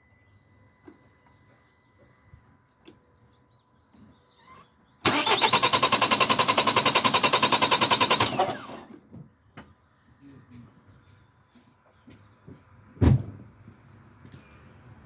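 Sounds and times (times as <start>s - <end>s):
engine cranking by starter: 5.0s - 9.0s.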